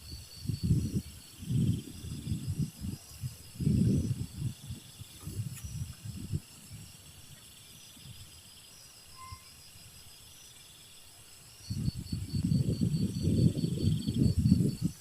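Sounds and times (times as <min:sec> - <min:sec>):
insects chirping and trilling: 0:00.0 - 0:15.0
faint tone: 0:09.2 - 0:09.5.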